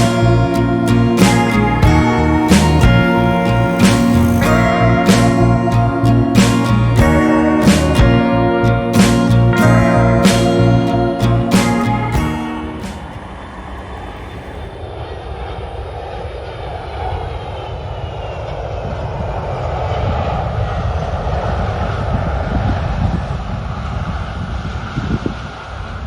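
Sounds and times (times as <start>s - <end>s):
jet airliner passing overhead: 0.0s - 6.3s, 10.9s - 26.0s
music: 0.0s - 13.2s.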